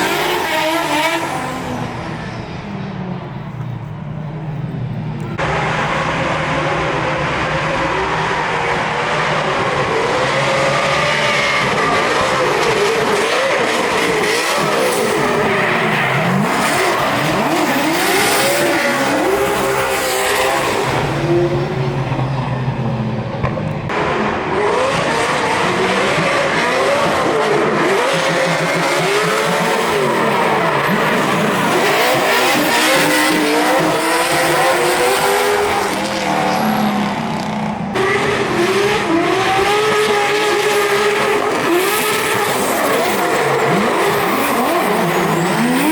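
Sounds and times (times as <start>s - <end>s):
high-revving car engines: 0.0s - 45.9s
tyre squeal and skidding: 39.1s - 45.9s.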